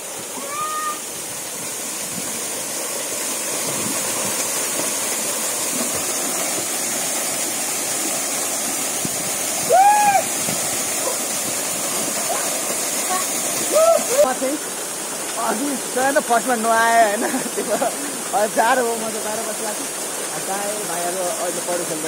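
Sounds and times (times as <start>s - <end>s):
waterfall rushing: 0.0s - 22.0s
person calling: 0.4s - 1.0s.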